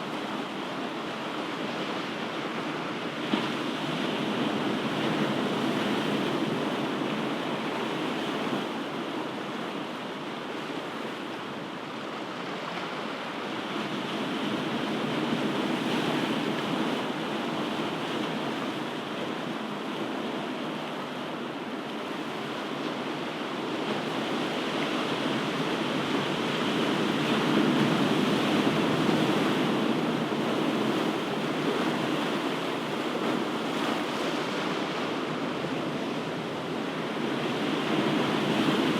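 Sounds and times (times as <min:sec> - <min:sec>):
ocean waves breaking: 0:22.1 - 0:38.9.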